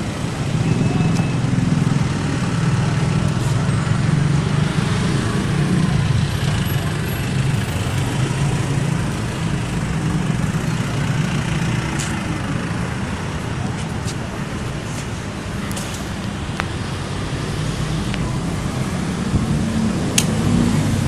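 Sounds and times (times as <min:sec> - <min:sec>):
motorcycle engine running: 0:00.1 - 0:13.7.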